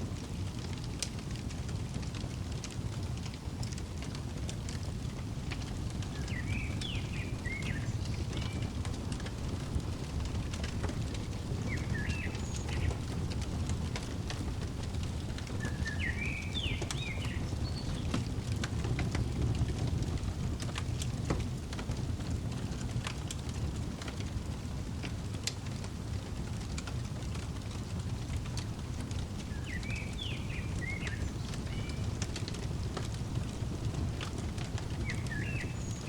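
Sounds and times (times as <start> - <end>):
fireplace fire crackling: 0.0 - 36.0
bird twittering: 6.0 - 9.6, 10.7 - 13.2, 15.0 - 18.1, 29.5 - 33.6, 34.5 - 36.0.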